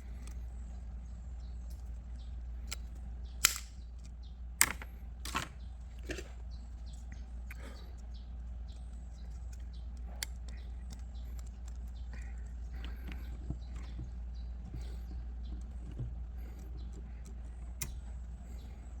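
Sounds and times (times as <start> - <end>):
low hum: 0.0 - 19.0
sharp clicks and knocks: 2.6 - 6.3.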